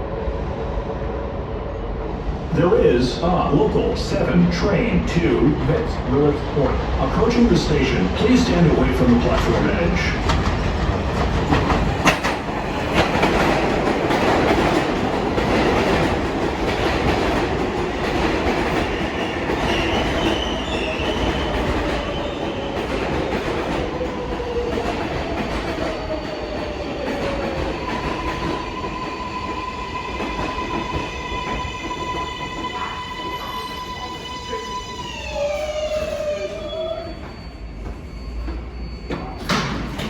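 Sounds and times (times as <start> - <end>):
train wheels clacking and squealing: 9.0 - 40.0.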